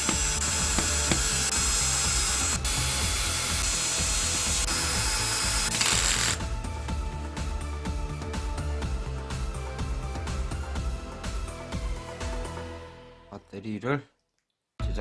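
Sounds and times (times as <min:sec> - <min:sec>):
small electric power tool running: 0:00.0 - 0:06.4
background music with steady beat: 0:00.0 - 0:13.6, 0:14.8 - 0:15.0.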